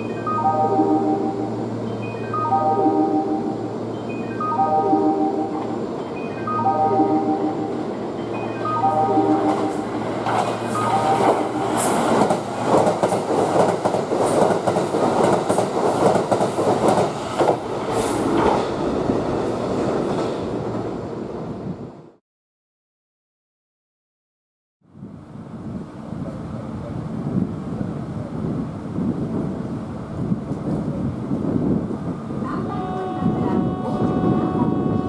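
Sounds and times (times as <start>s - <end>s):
platform warning chime: 0.0s - 11.8s, 32.8s - 35.0s
train passing at speed: 0.0s - 22.2s, 25.0s - 35.0s.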